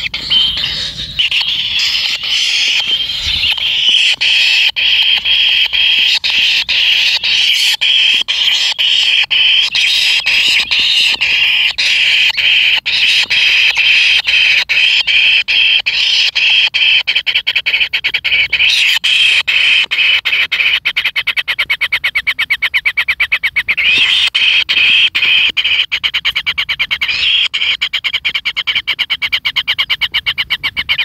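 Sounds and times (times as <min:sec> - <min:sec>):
nestlings buzzing begging calls: 0:00.0 - 0:21.3, 0:23.4 - 0:28.0.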